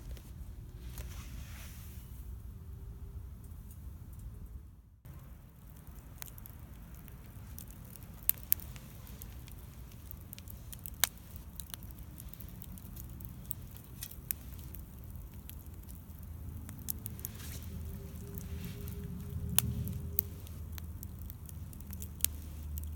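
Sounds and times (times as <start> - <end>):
low steady rumble: 0.0 - 22.9
wood bonfire crackling: 5.0 - 22.9
sharp pops and snaps: 5.1 - 22.9.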